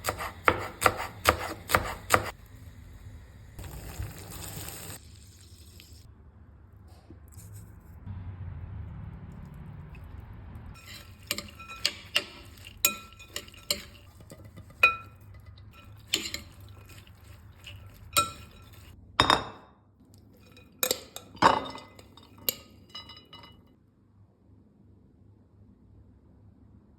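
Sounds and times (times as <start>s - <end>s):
cutlery clinking against a dish: 10.8s - 19.5s, 20.4s - 23.6s.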